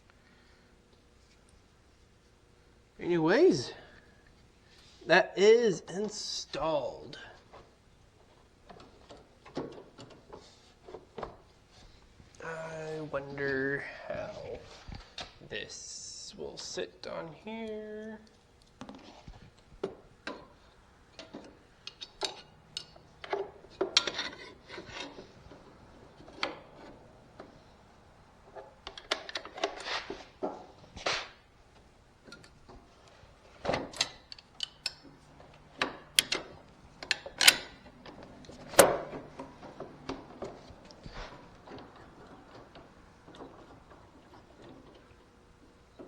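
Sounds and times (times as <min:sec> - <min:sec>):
metal parts knocking and scraping: 0:36.2 - 0:37.8.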